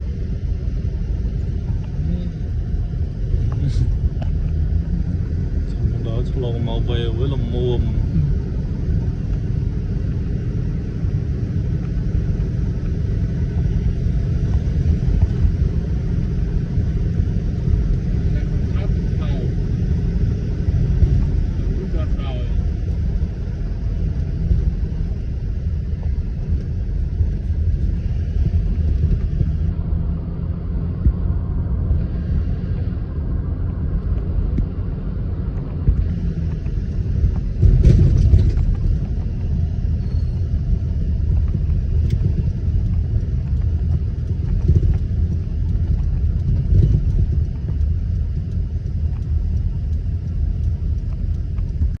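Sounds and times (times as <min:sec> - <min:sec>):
vehicle driving rumble: 0:00.0 - 0:52.0.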